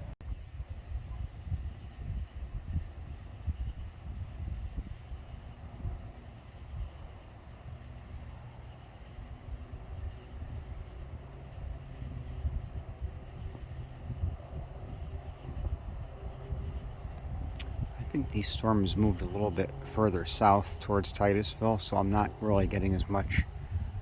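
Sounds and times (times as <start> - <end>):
night insects chorus: 0.2 - 24.0
low uneven rumble: 17.0 - 24.0.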